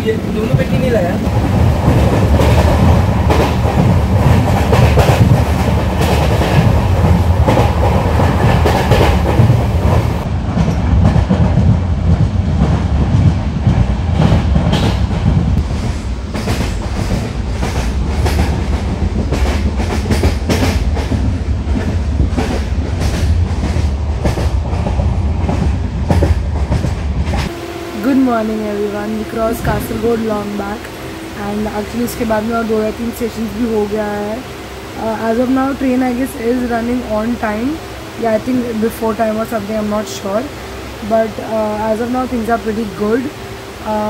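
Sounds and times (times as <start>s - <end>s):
wheels clicking over rail joints: 0.0s - 15.6s, 16.3s - 27.5s
train running gear rumble: 0.0s - 44.0s.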